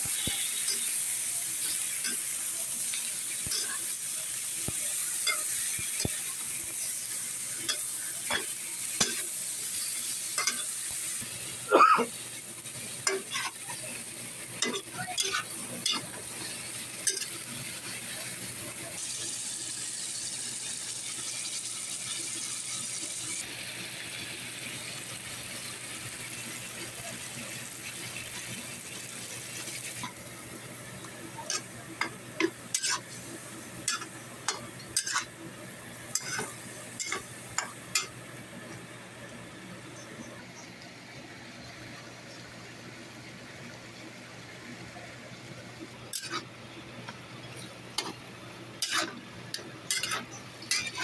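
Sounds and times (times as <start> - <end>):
chicken sizzling in a pan: 0.0 - 51.0
utensil clicking and scraping pan: 33.9 - 35.3, 36.1 - 38.1, 46.1 - 46.4, 48.8 - 51.0.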